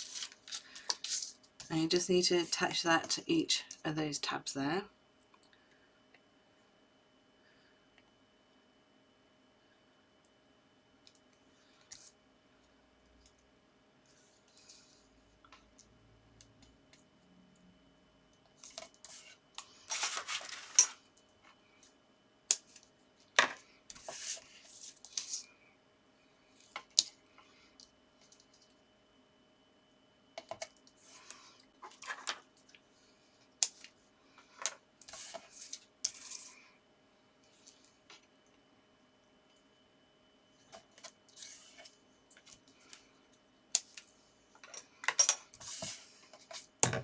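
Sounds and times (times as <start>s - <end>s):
paper rustling: 0.0s - 1.4s.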